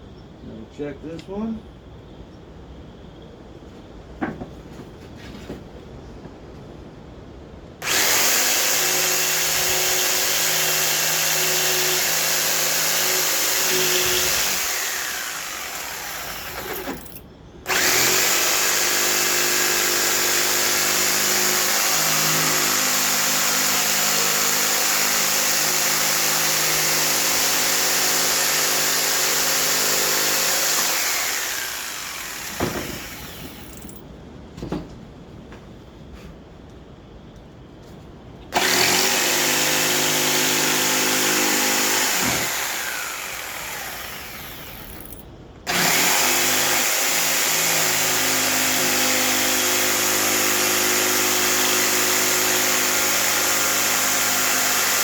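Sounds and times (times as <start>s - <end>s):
electric power tool running: 7.8s - 33.9s, 38.6s - 55.0s.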